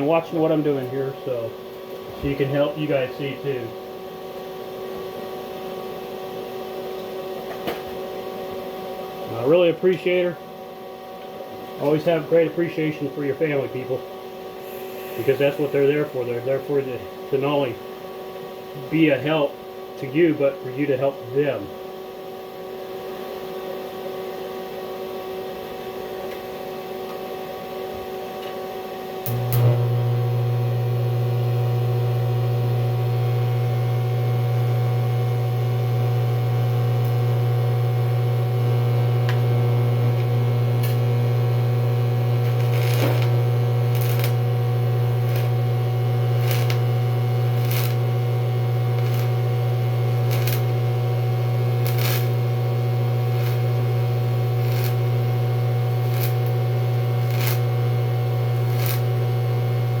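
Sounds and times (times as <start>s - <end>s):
welding arc humming: 0.0s - 5.8s, 11.7s - 21.7s, 28.3s - 60.0s
welding crackles and pops: 29.2s - 60.0s.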